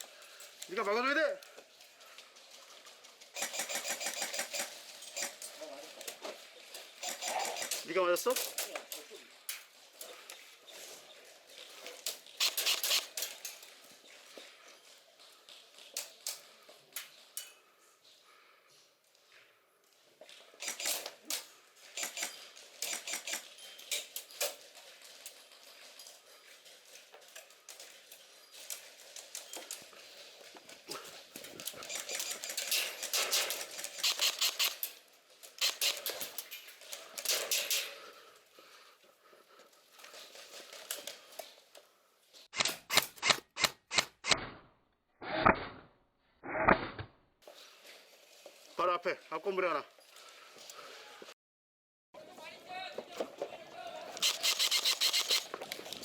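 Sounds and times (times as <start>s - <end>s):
gear rattling: 20.6s - 38.1s.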